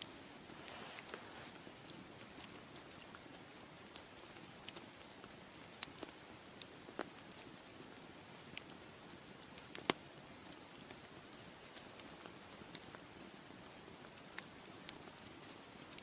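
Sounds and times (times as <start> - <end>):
bonfire crackling: 0.0 - 16.0.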